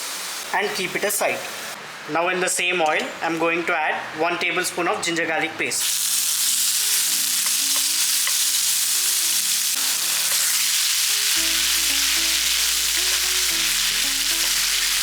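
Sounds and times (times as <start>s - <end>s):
paste sizzling in hot oil: 5.8s - 15.0s
background music with bass line: 11.4s - 15.0s.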